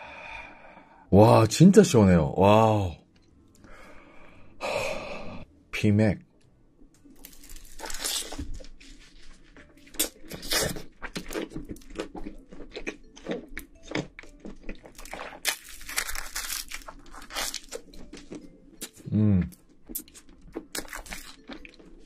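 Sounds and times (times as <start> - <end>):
crunching and chewing crisp food: 7.1 - 22.0.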